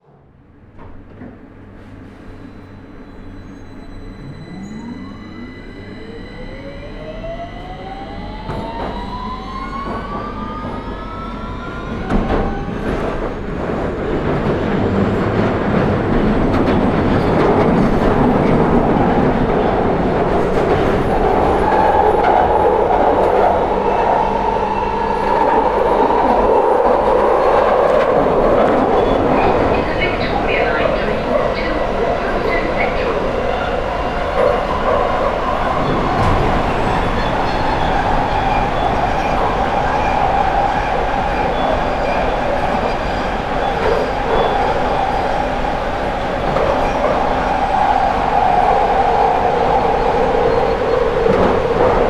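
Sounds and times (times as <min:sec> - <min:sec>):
train running rumble: 0:07.5 - 0:52.0
train knock: 0:34.4 - 0:39.5.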